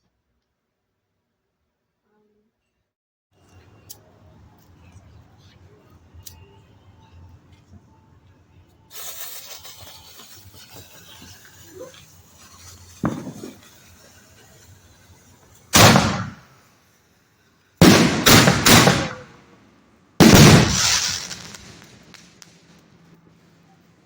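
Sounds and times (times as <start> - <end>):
fireworks crackling hiss: 8.8 - 24.0
fireworks booms: 12.4 - 14.0, 15.7 - 16.6, 17.8 - 19.4, 20.2 - 22.9
fireworks thump: 12.9 - 13.7, 17.8 - 19.3, 20.2 - 22.5.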